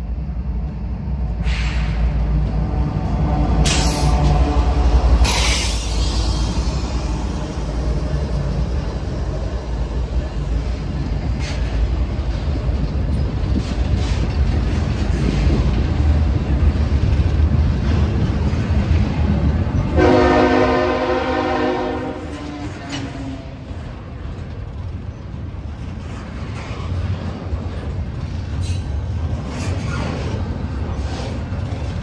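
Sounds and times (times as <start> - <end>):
freight train wheels rumbling: 0.0 - 32.0
locomotive air horn chord: 20.0 - 22.6.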